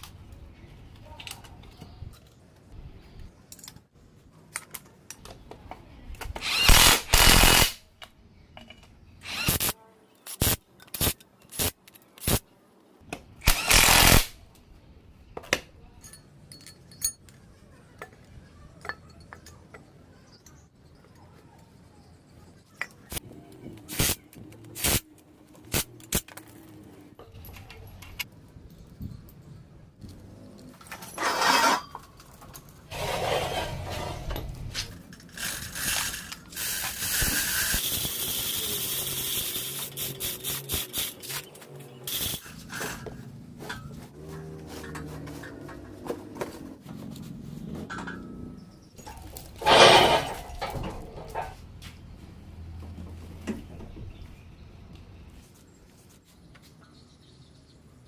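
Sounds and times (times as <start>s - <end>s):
power tool bursts: 6.4s - 7.8s, 9.2s - 9.7s, 13.4s - 14.3s.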